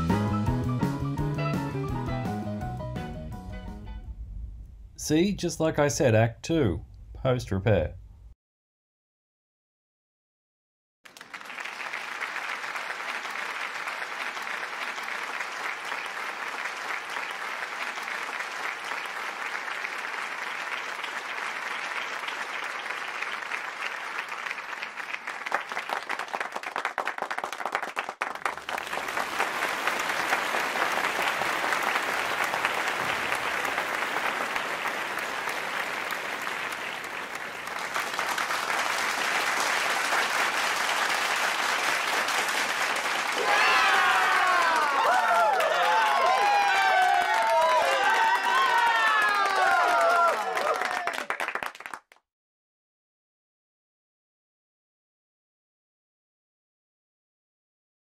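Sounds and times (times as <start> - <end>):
crowd applause: 11.1 - 52.2.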